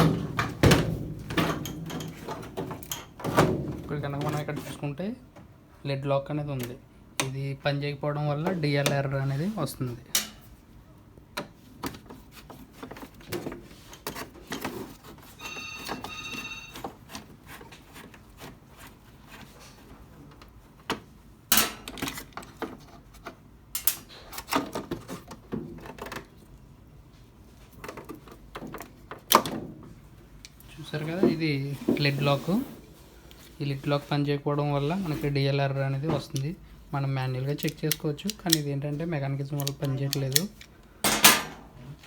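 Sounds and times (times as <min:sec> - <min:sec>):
plastic and metal parts clicking: 0:37.5 - 0:38.7, 0:39.5 - 0:41.3.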